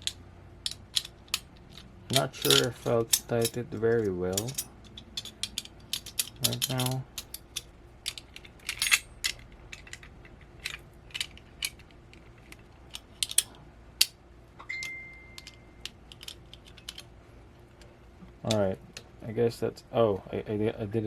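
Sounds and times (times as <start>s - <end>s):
small metal parts clinking: 0.0s - 17.2s
high steady tone: 14.6s - 15.8s.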